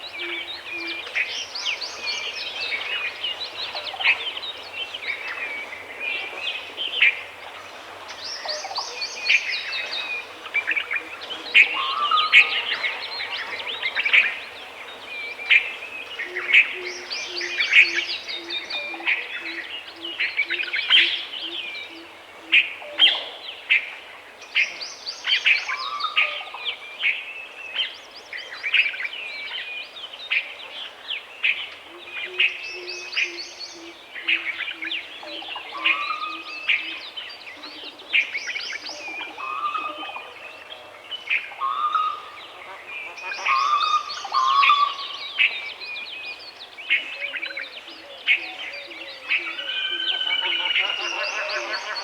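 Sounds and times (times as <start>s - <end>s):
woodland birds chirping: 0.0s - 23.8s, 24.6s - 52.0s
low hooting bird call: 41.6s - 45.7s, 47.0s - 52.0s.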